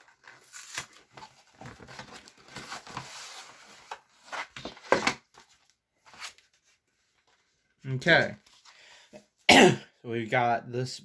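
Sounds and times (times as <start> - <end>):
paper rustling: 0.0 - 7.6.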